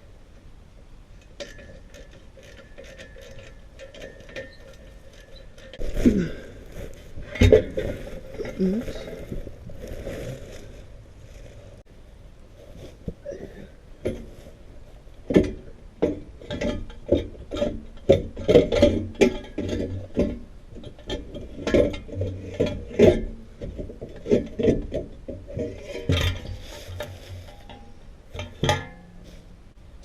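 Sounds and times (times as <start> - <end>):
exhaust pipe knocking and clanking: 1.2 - 9.7, 15.2 - 29.4.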